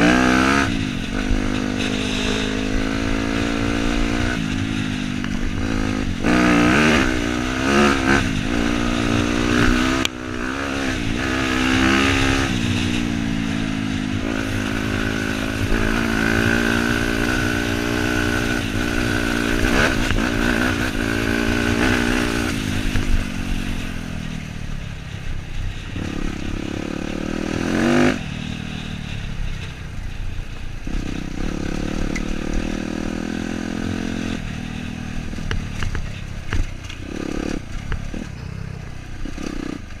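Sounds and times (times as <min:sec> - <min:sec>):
dirt bike engine revving: 0:00.0 - 0:29.7, 0:30.8 - 0:40.0.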